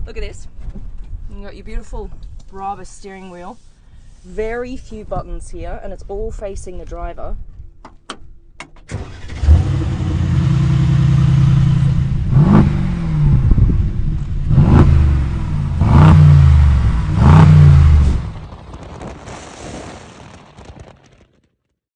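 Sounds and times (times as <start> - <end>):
car engine starting and revving: 8.9 - 18.5.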